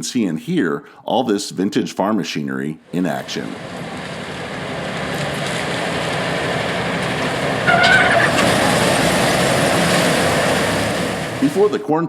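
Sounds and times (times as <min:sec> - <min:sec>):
farm machinery engine running: 0:02.9 - 0:11.8.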